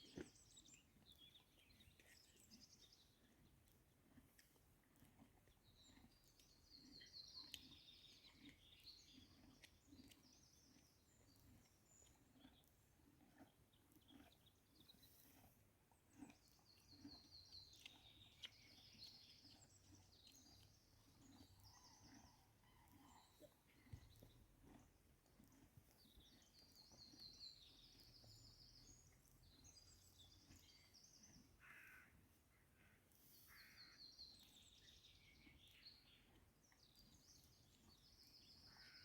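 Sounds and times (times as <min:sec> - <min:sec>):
small birds trilling: 0:25.4 - 0:32.1, 0:32.8 - 0:39.0.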